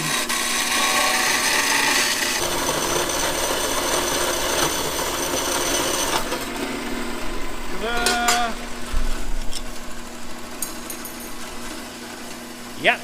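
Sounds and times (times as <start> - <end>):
power tool grinding metal: 0.0 - 12.9.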